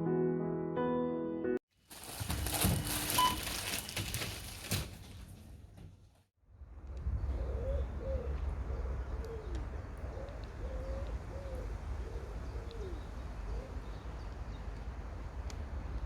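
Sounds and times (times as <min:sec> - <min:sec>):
pigeon cooing: 0:07.4 - 0:13.8.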